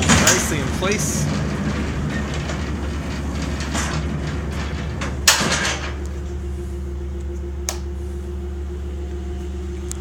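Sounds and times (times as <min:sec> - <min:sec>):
steady low hum: 0:00.0 - 0:10.0
loud metal clunk with ringing: 0:05.0 - 0:06.0.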